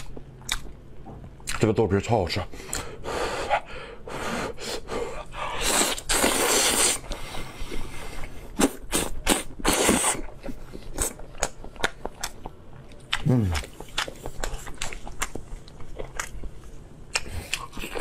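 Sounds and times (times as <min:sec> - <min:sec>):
wet chewing clicks and smacks: 0:00.0 - 0:01.7, 0:10.9 - 0:18.0.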